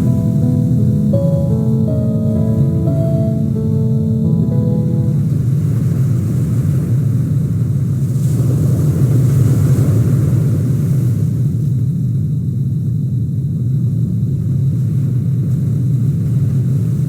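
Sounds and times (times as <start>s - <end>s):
background music with held notes: 0.0s - 5.9s.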